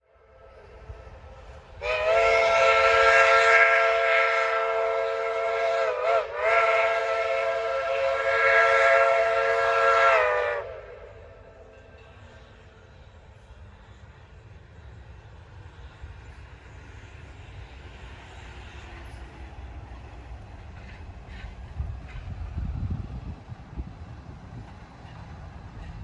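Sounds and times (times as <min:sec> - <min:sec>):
steam locomotive chime whistle: 0:01.8 - 0:11.8.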